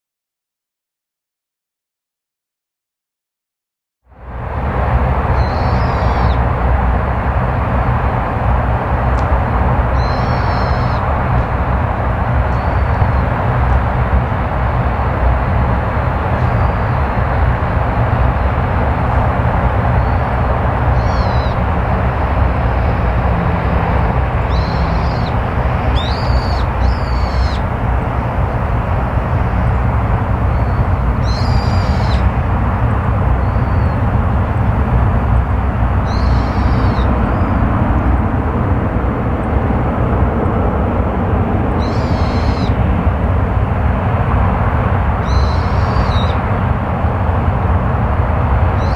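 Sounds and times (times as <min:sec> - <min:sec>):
loud jet engine noise: 0:04.2 - 0:48.9
bird short falling calls: 0:10.0 - 0:11.1, 0:20.9 - 0:21.7, 0:24.4 - 0:27.8, 0:30.5 - 0:32.3, 0:36.1 - 0:37.5, 0:41.8 - 0:42.7.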